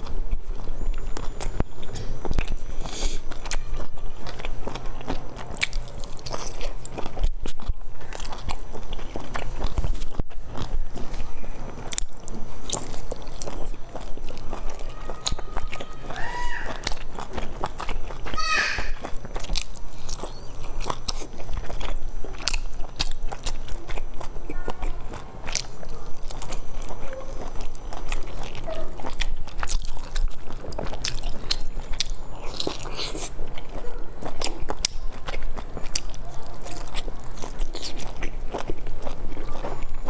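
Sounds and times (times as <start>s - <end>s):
person chewing dumplings: 0.0s - 40.0s.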